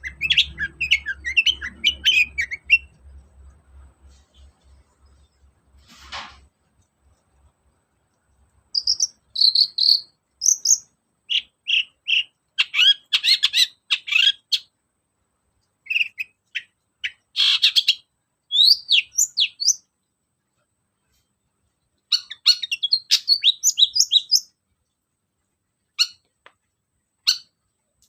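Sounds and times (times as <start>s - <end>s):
shrike chirping and whistling: 0.0s - 3.0s, 8.8s - 14.7s, 15.9s - 19.8s, 22.1s - 24.5s, 26.0s - 26.2s, 27.2s - 27.5s.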